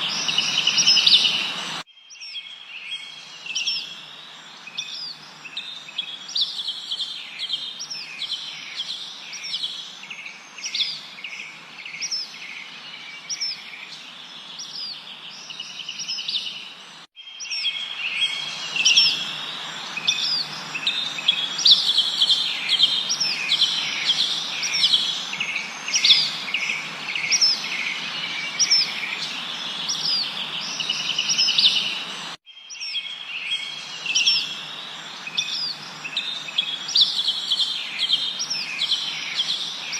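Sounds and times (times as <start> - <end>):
background hiss: 0.0 - 1.8, 17.8 - 32.4, 33.2 - 39.9
small birds chirping and trilling: 0.0 - 39.9.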